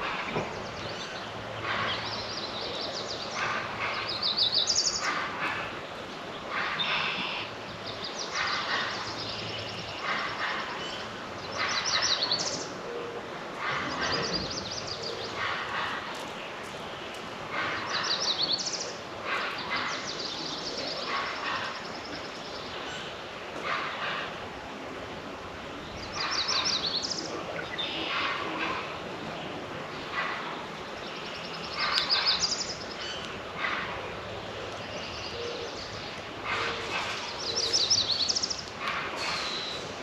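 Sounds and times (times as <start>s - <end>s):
songbird singing with trill: 34.7s - 38.7s.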